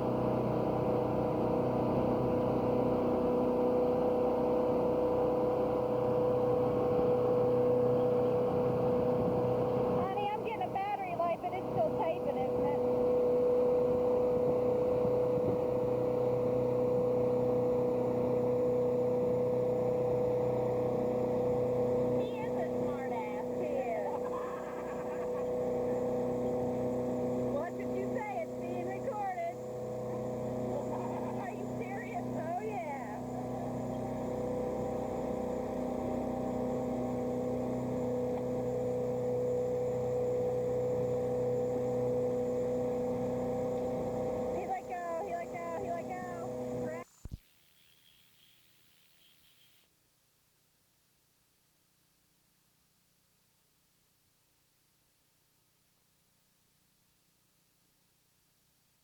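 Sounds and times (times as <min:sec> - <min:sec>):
motorboat engine drone: 0:00.0 - 0:50.0
water rushing: 0:15.7 - 0:47.0.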